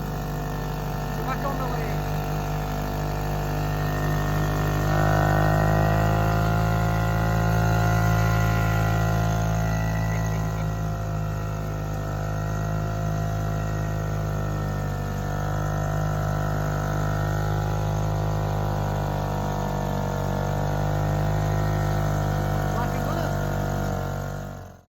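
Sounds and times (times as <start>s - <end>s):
two-stroke outboard motor running: 0.0s - 24.9s.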